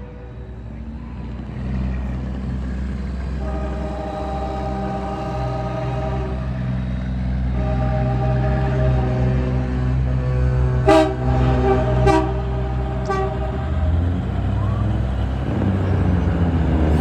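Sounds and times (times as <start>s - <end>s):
truck engines running: 0.0s - 17.0s
vehicle horn: 3.2s - 15.7s.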